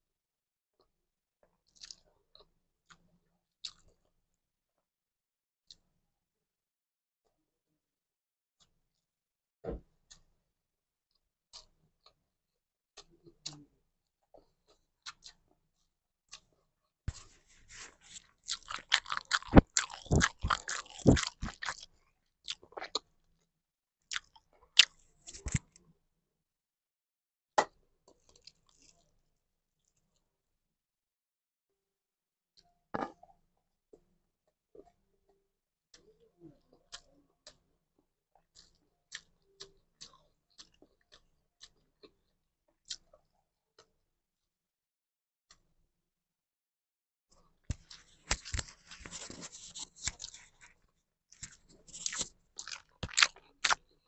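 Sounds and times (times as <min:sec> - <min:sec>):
crunchy biting and chewing: 0:17.1 - 0:21.9, 0:24.1 - 0:25.7, 0:47.7 - 0:50.7, 0:51.3 - 0:53.9.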